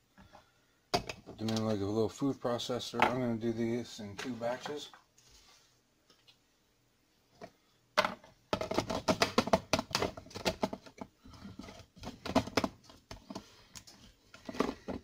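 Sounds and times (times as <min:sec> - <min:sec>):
cookies clattering into plastic bowl: 0:08.0 - 0:13.5, 0:14.4 - 0:15.0.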